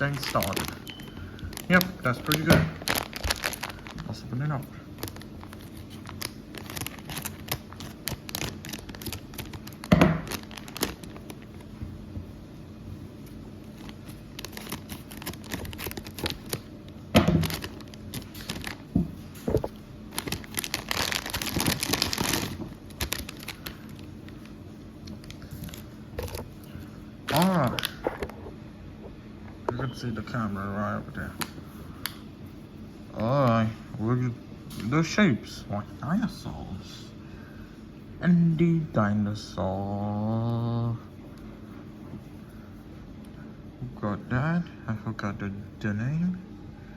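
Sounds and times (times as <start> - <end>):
plastic bag crinkling: 0.0 - 11.8, 13.6 - 28.5
bag being torn open: 1.6 - 4.1, 5.0 - 11.2, 17.3 - 18.8, 19.6 - 23.8.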